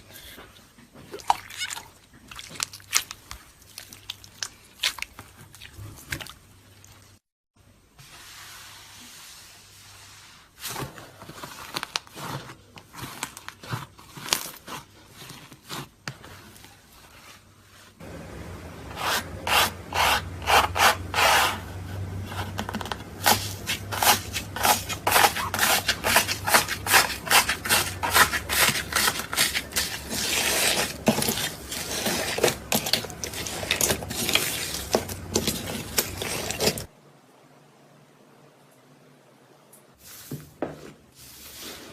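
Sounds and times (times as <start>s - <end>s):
slime crackling and squelching: 1.2s - 6.5s, 23.2s - 36.9s.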